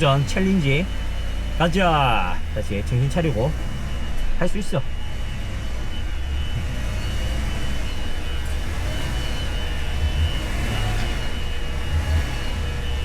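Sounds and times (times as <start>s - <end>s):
engine low rumble: 0.0s - 13.0s.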